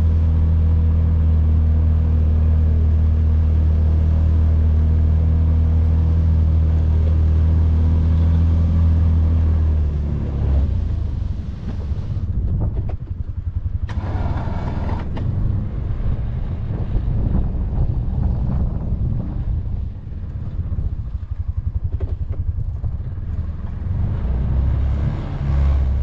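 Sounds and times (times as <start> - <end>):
utility vehicle engine running: 0.0 - 26.0
wind on microphone: 10.5 - 26.0
engine knocks: 11.3 - 24.4.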